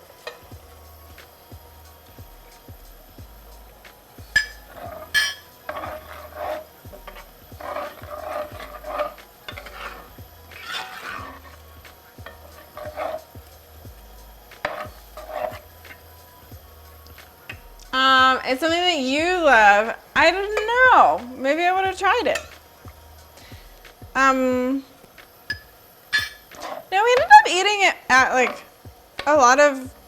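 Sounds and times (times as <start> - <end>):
utensil scraping in a pan: 0.0 - 2.8, 3.6 - 30.0
metal clinks on pan: 5.2 - 5.5, 25.5 - 26.5.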